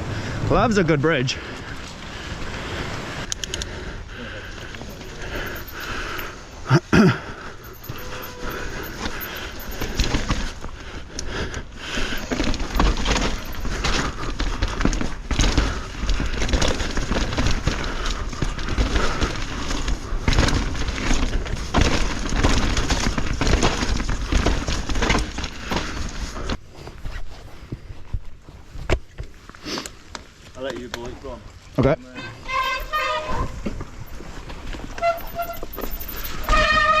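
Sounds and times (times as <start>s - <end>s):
low wind rumble: 0.0s - 28.4s
bike frame and chain rattling: 3.3s - 26.6s, 32.2s - 37.0s
bike tyres crunching over rocks: 4.4s - 31.7s, 32.4s - 37.0s.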